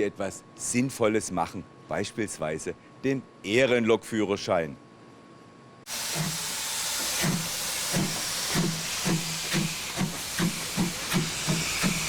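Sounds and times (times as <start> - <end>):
hiss of steam: 5.9 - 12.0
steam locomotive puffing: 5.9 - 12.0.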